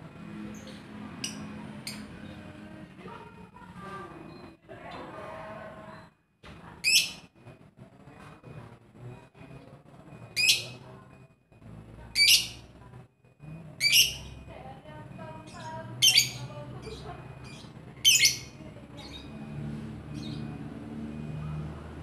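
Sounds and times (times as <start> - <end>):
lovebird shrill calls: 13.8 - 14.3, 17.4 - 19.2.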